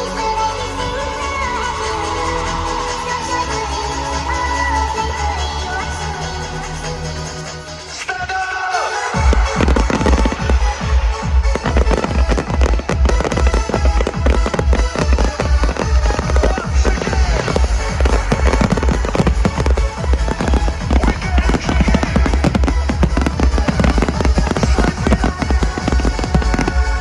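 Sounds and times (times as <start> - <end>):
dance music with heavy bass: 0.0 - 27.0
fireworks bangs and crackles: 8.1 - 27.0.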